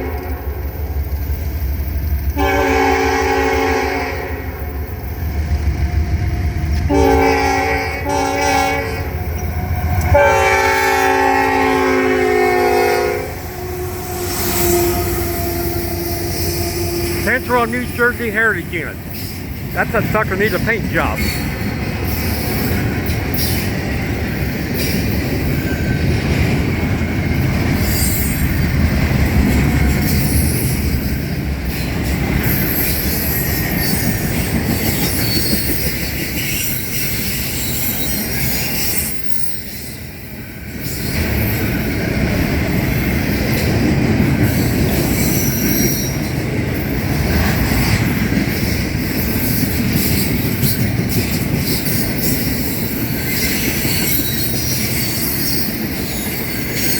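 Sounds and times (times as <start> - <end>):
freight train wheels rumbling: 0.0 - 56.9
high wheel squeals: 13.6 - 17.2
wheels clickety-clack: 21.2 - 40.1, 40.7 - 56.9.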